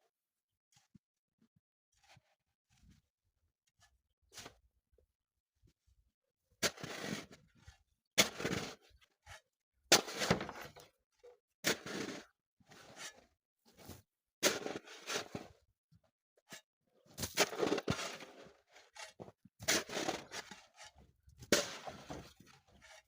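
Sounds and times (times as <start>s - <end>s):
shovel digging into packed snow: 6.6s - 7.4s, 8.2s - 8.8s, 9.9s - 10.7s, 11.7s - 13.2s, 13.8s - 15.5s, 17.2s - 23.0s.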